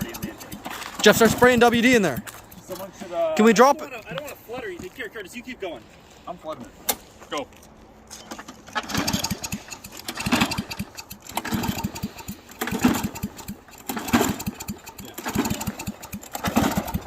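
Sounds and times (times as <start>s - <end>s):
engine pull-start firing: 0.0s - 4.6s, 8.1s - 17.0s.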